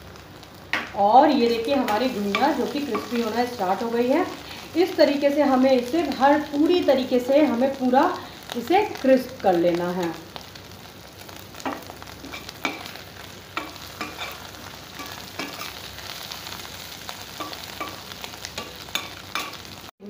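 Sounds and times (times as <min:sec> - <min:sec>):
food sizzling in hot oil: 0:00.0 - 0:20.0
spatula scraping and tapping pan: 0:01.9 - 0:03.3, 0:11.6 - 0:15.8, 0:17.4 - 0:19.7.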